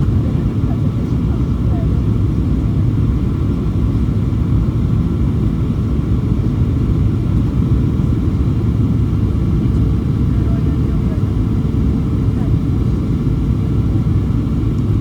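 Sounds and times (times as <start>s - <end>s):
airplane cabin engine drone: 0.0s - 15.0s.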